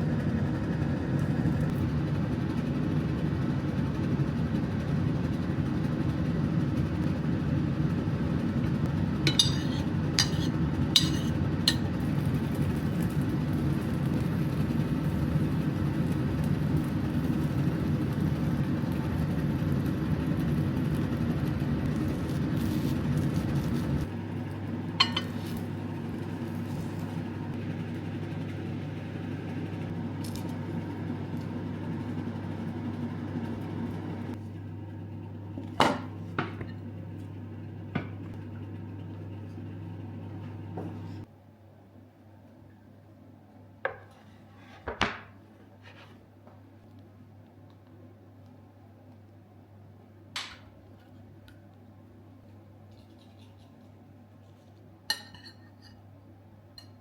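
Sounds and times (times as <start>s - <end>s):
steady low hum: 0.0s - 41.3s.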